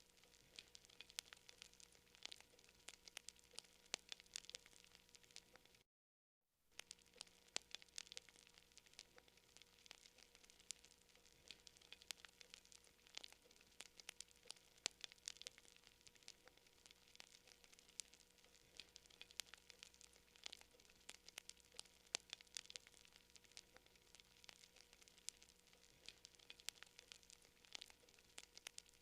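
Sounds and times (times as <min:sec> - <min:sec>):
burning wood popping: 0:00.0 - 0:05.8, 0:06.8 - 0:29.0
campfire crackling: 0:00.0 - 0:05.8, 0:06.8 - 0:29.0.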